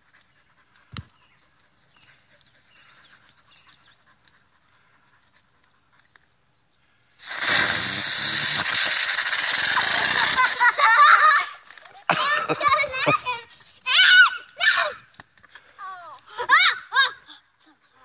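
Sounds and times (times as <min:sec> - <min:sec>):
firework spraying sparks hiss: 0:07.2 - 0:10.9.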